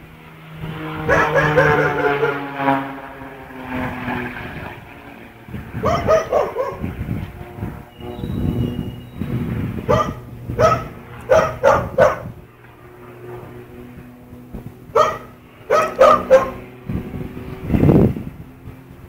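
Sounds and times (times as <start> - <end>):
low rumble: 0.0 - 15.7
dog barking: 1.1 - 2.4, 5.8 - 6.8, 9.9 - 12.3, 14.9 - 16.6.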